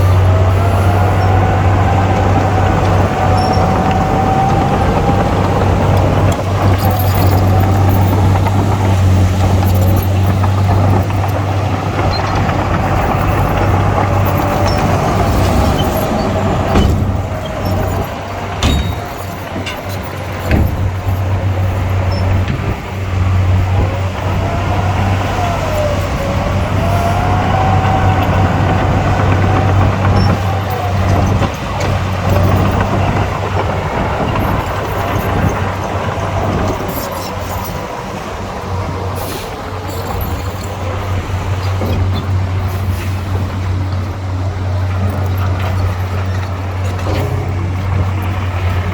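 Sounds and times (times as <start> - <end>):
diesel machinery droning: 0.0 - 48.9
sharp knocks: 14.8 - 23.1.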